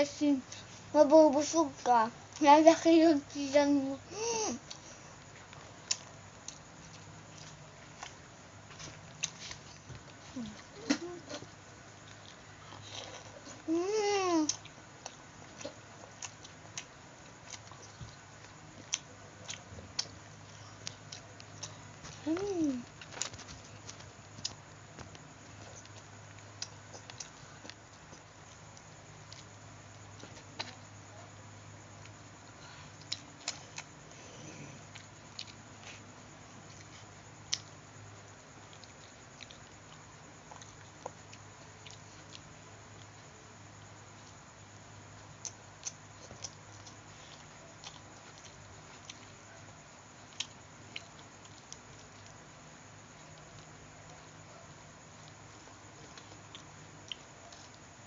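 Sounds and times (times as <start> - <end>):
steady low hum: 0.0 - 58.0
chewing with wet mouth clicks: 5.5 - 9.7, 14.5 - 22.2, 23.0 - 30.8, 33.0 - 34.0, 34.9 - 36.0, 38.6 - 43.2, 45.2 - 49.4, 50.2 - 52.4, 56.0 - 57.9.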